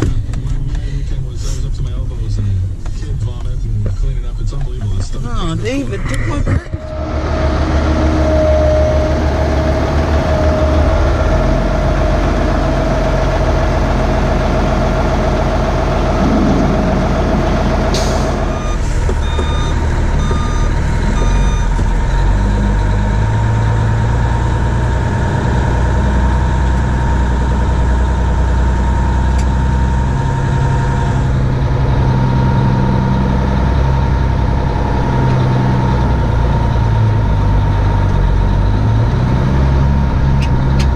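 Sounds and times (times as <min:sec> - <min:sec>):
diesel engines running: 0:00.0 - 0:40.9
steady whine: 0:05.6 - 0:19.8
back-up alarm beeps: 0:16.2 - 0:22.7.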